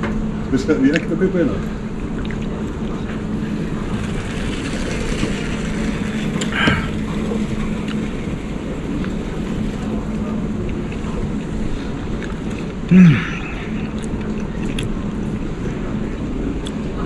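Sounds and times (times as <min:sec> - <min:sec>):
airport terminal low hum: 0:00.0 - 0:17.0.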